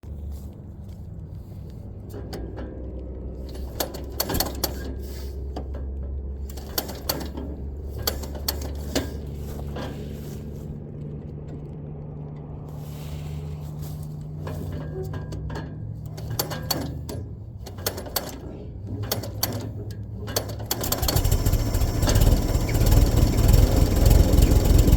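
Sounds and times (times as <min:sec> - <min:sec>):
tractor engine humming: 0:00.0 - 0:24.9
sharp clicks and knocks: 0:02.0 - 0:10.0, 0:14.2 - 0:24.9.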